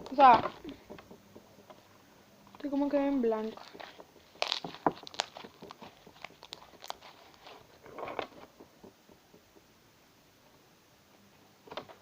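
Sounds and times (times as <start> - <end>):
slime sticky clicks and crackles: 4.3 - 7.5.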